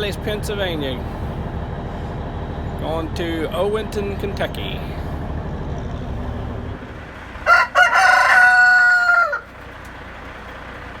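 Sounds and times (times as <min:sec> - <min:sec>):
low rumble: 0:00.0 - 0:07.5
rooster crowing: 0:07.4 - 0:09.6.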